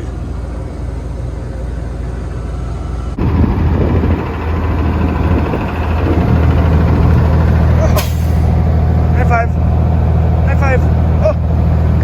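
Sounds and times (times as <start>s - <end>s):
heavy truck engine running: 0.0s - 12.0s.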